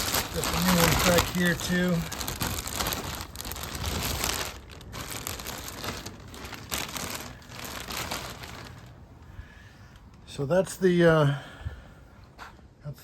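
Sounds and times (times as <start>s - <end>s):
plastic sheeting crinkling: 0.0s - 9.2s.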